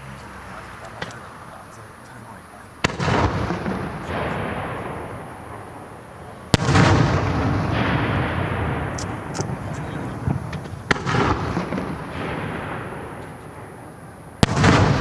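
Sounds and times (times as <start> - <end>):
rolling echo: 0.0 - 15.0
firework shells bursting: 0.8 - 15.0.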